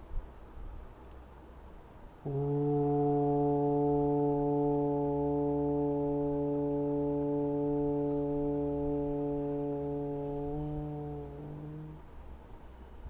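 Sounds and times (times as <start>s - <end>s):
person chanting a held syllable: 2.2s - 12.1s.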